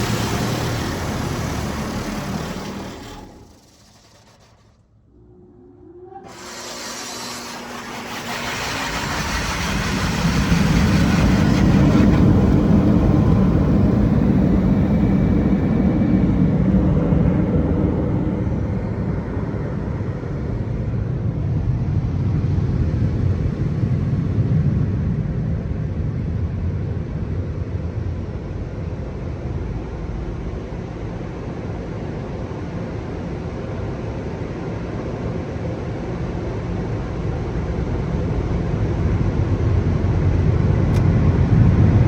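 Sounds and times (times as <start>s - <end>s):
loud rush of air: 0.0s - 4.0s, 5.1s - 24.8s
blower dryers whining: 0.0s - 24.7s.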